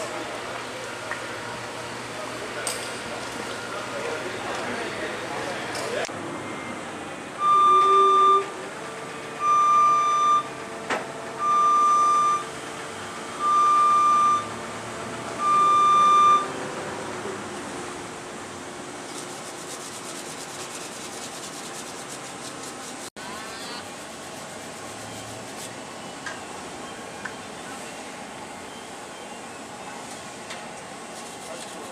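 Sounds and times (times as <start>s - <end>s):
mechanical background noise: 0.0s - 31.9s
electronic beeps: 15.4s - 16.5s.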